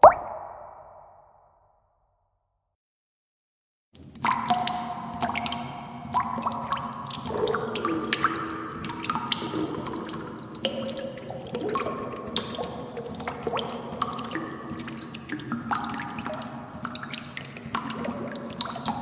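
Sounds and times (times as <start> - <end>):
water drops plinking: 0.0 - 1.0.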